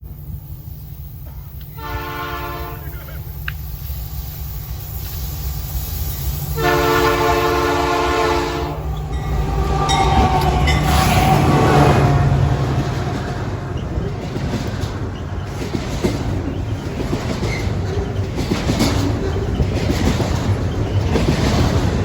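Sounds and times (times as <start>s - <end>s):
freight train rumble: 0.0s - 22.0s
wheels clacking on rails: 0.0s - 22.0s
locomotive air horn blasts: 1.7s - 3.2s, 6.5s - 12.9s.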